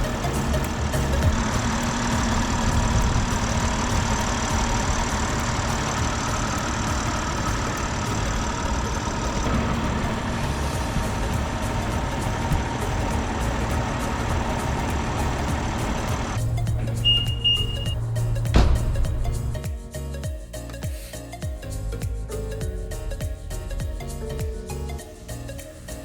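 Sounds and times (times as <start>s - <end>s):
car engine idling: 0.0s - 19.7s, 21.8s - 25.4s.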